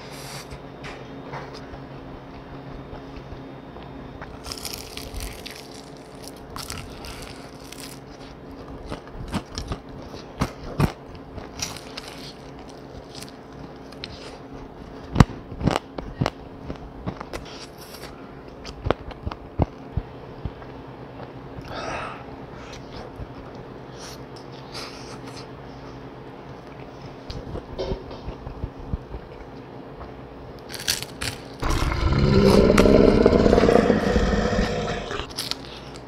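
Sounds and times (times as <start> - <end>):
biting crunchy fried chicken: 4.2 - 14.5, 30.6 - 36.0.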